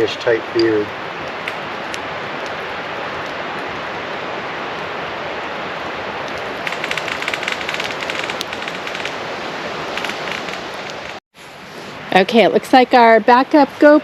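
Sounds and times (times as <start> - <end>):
campfire crackling and popping: 0.0 - 11.2.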